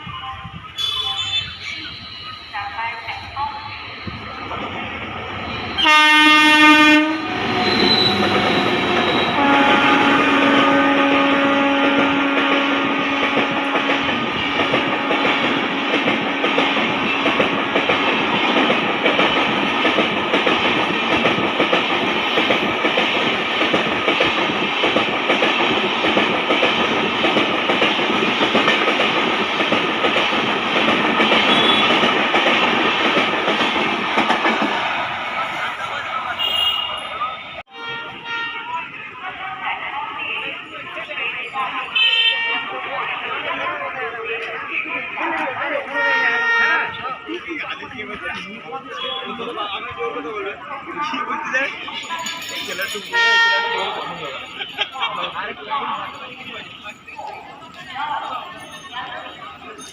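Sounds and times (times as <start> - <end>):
train horn: 5.8 - 17.4, 31.4 - 32.1, 36.4 - 38.9, 45.9 - 47.0, 53.1 - 54.0.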